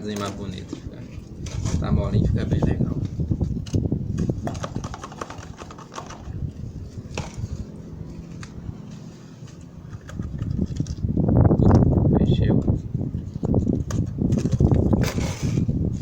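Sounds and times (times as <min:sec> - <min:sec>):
wet cement knocking and scraping: 0:00.0 - 0:11.0, 0:13.3 - 0:15.7.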